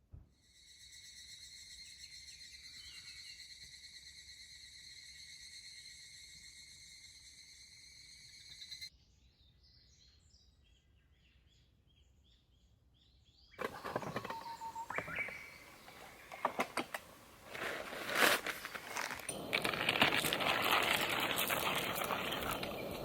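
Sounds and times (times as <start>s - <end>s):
small birds chirping: 0.5s - 23.0s
handling clicks and clatter: 13.6s - 23.0s.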